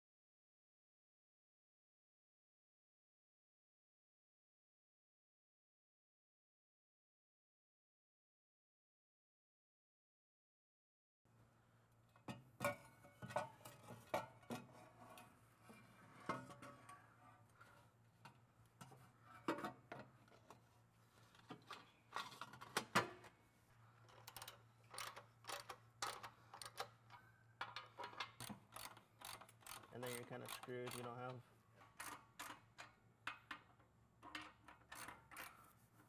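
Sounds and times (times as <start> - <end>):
hand tools clanking on metal: 27.6 - 33.0.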